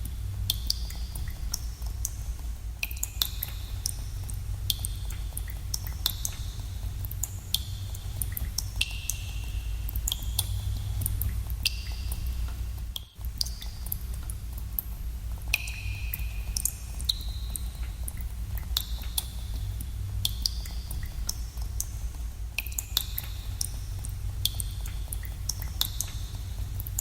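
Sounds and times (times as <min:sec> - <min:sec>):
water drops plinking into pools: 0:02.8 - 0:14.9, 0:15.5 - 0:19.3, 0:22.6 - 0:23.8, 0:24.4 - 0:27.0.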